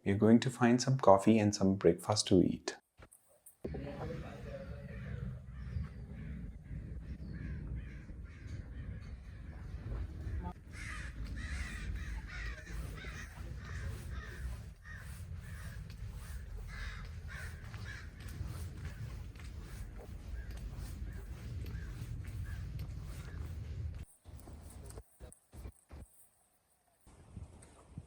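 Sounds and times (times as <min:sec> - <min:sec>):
low steady rumble: 0:03.7 - 0:25.1
crows cawing: 0:05.0 - 0:09.6, 0:10.2 - 0:23.7.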